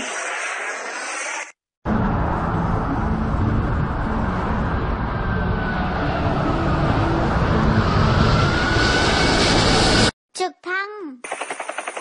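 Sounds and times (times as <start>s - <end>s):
jet airliner engines roaring: 1.9s - 10.1s.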